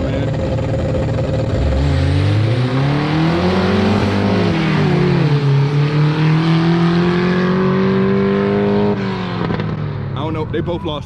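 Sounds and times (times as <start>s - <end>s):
cars accelerating hard: 1.5s - 10.3s.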